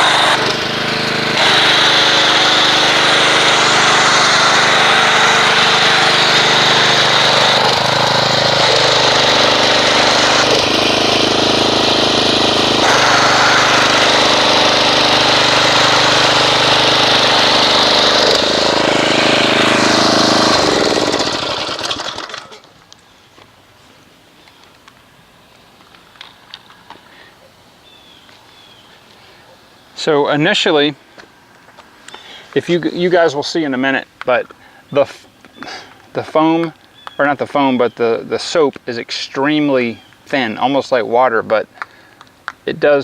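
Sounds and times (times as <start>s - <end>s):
pressure washer motor hum: 0.0s - 22.8s.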